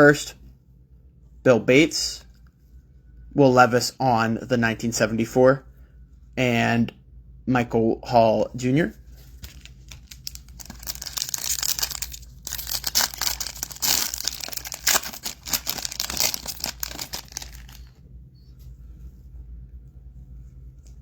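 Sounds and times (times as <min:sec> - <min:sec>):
foil wrapper tearing and crinkling: 0:09.4 - 0:17.9.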